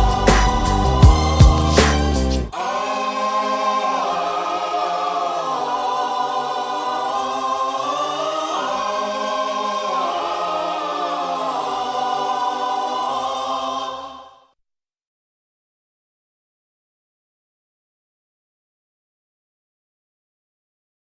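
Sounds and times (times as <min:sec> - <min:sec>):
choral singing: 0:00.0 - 0:14.6.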